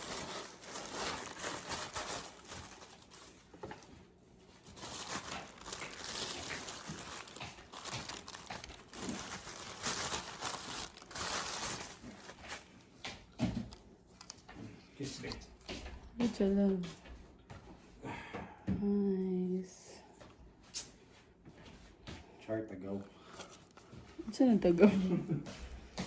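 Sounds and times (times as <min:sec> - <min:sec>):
packaging crinkling and rustling: 0:00.0 - 0:16.0, 0:22.9 - 0:24.8.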